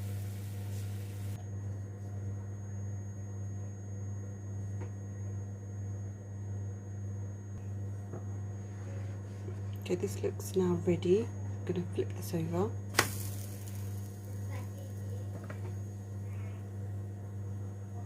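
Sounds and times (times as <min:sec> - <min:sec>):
faint hiss: 0:00.0 - 0:01.4
steady low hum: 0:00.0 - 0:18.0.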